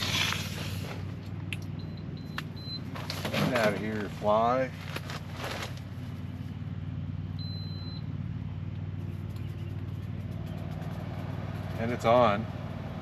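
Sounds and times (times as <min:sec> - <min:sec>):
low machine hum: 0:00.0 - 0:13.0
short electronic beep: 0:07.4 - 0:08.0.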